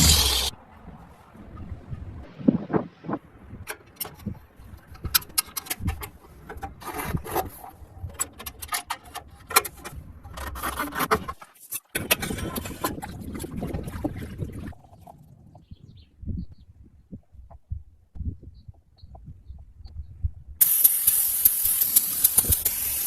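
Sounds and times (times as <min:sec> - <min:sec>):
hand work on metal parts: 0:00.0 - 0:00.5, 0:20.6 - 0:23.0.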